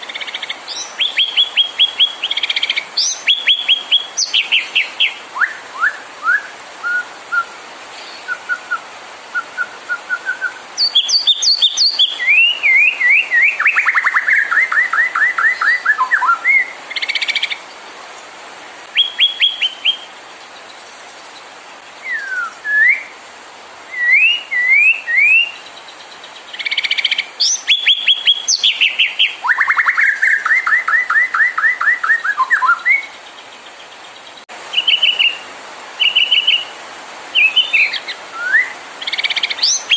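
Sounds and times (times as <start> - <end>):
bird singing whistled phrases: 0.1 - 17.4, 18.9 - 20.1, 22.0 - 23.1, 23.9 - 25.6, 26.6 - 33.1, 34.7 - 35.4, 36.0 - 36.7, 37.4 - 39.9.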